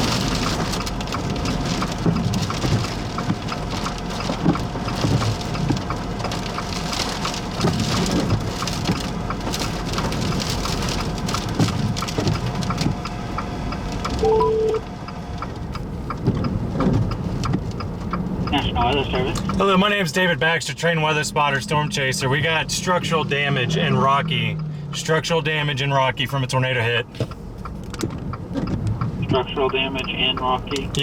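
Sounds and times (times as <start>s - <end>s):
heavy rain falling: 0.0s - 13.0s, 29.0s - 31.0s
steady electronic tone: 14.2s - 14.8s.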